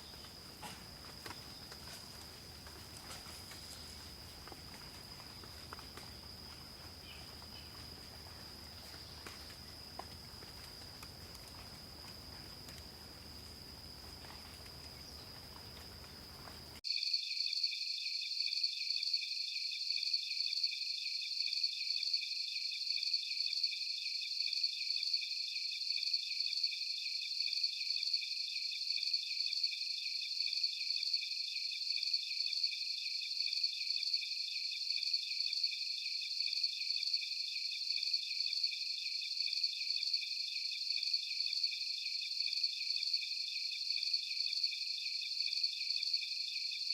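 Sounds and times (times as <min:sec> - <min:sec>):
pulsing insect chorus: 0:00.0 - 0:16.8
high insect tone: 0:00.0 - 0:18.4.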